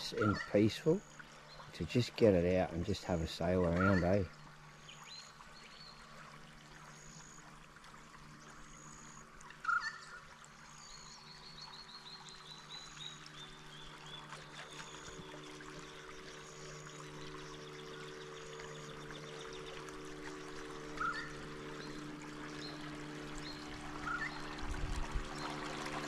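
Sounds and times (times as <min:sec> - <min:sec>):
birds calling: 0:00.0 - 0:06.1, 0:08.5 - 0:19.9, 0:20.6 - 0:24.6
water trickling and lapping: 0:00.0 - 0:26.0
electric motor hum: 0:12.9 - 0:26.0.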